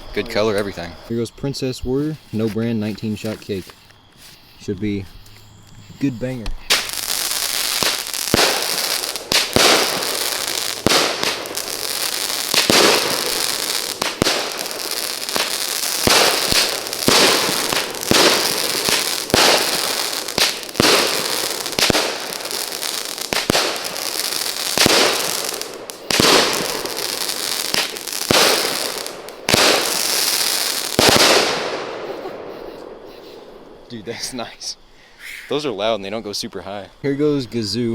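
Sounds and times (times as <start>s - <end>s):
firework crackling: 5.2s - 34.5s
firework bangs: 6.3s - 33.9s.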